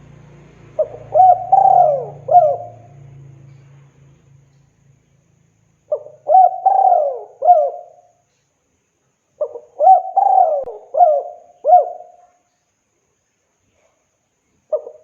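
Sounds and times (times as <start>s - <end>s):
dove cooing: 0.8s - 3.0s, 5.9s - 8.1s, 9.4s - 12.3s, 14.7s - 15.0s.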